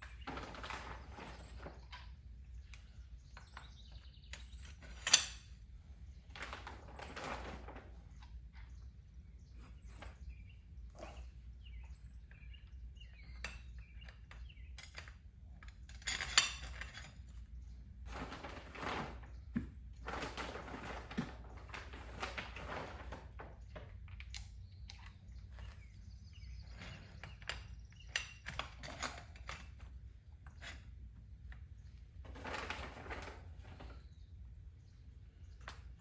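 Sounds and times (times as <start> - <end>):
metal tools clinking: 0.1 - 5.6, 13.2 - 17.4.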